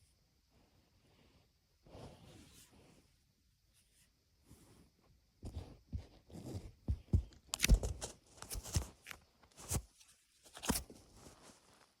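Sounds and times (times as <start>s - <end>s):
rustling and crunching taps: 5.4s - 9.9s.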